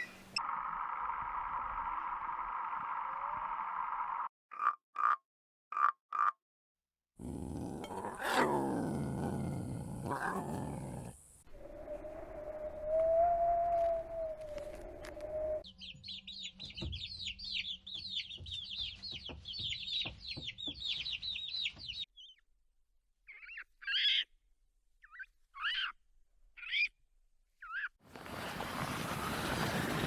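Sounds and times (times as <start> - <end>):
lower bird calls: 9.9 - 15.6
birds chirping rapidly: 15.7 - 22.4, 23.3 - 24.3.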